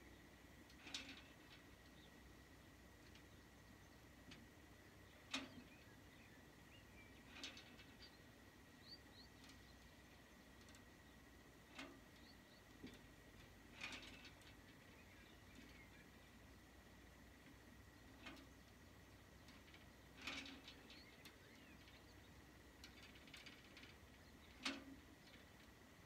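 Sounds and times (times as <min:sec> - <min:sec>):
faint bird chirps: 0:04.8 - 0:13.0, 0:17.9 - 0:23.1.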